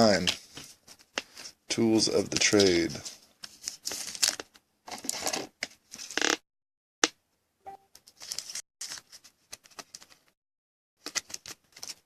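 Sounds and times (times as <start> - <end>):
cards scraping and clicking: 11.0 - 12.0.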